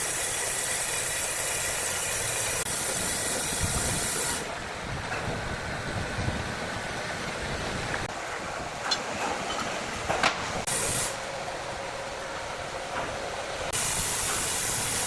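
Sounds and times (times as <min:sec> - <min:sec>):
saw blade hiss: 0:00.0 - 0:04.6, 0:10.6 - 0:11.3, 0:13.7 - 0:15.0.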